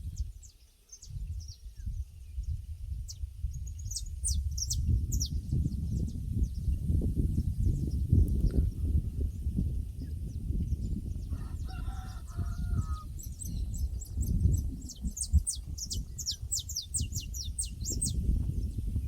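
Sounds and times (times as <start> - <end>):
small birds chirping: 0.0 - 19.0
low steady rumbling: 1.2 - 11.6
rooster crowing: 11.3 - 13.1.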